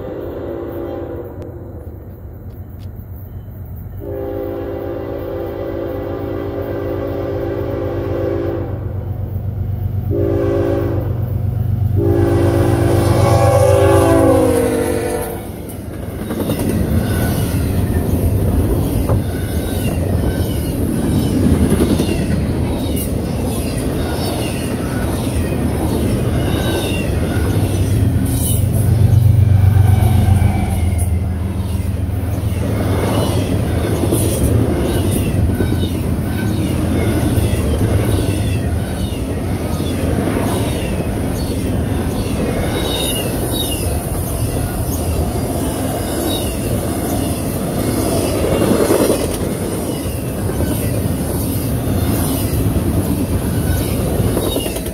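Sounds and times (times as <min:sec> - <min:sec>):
freight train wheels rumbling: 0:00.0 - 0:54.9
high wheel squeals: 0:16.3 - 0:45.3.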